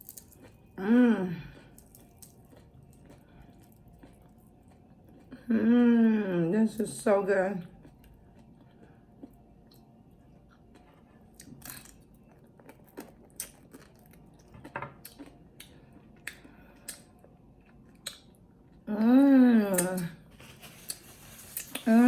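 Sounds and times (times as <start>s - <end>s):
person chewing food: 0.0s - 5.5s, 7.7s - 18.9s.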